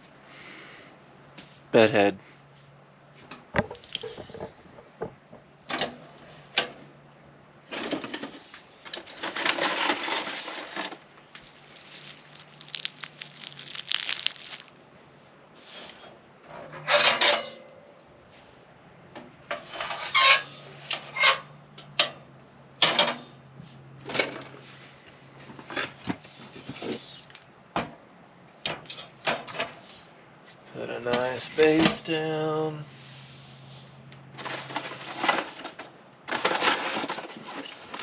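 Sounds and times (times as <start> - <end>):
rustling and crinkling: 7.7 - 16.2, 33.4 - 38.0.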